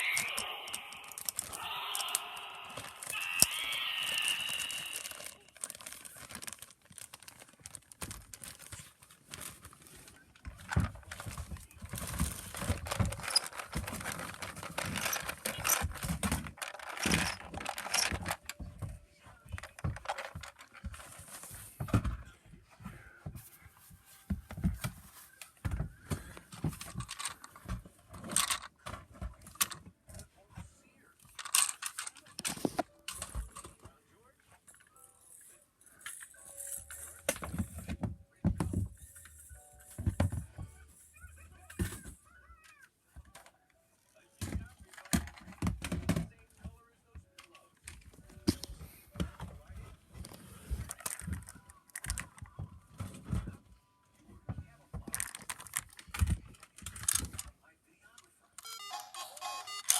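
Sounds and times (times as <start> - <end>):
toys clattering: 0.0 - 22.2, 26.5 - 29.9, 31.2 - 33.9, 44.4 - 46.6, 50.2 - 53.4, 55.0 - 59.9.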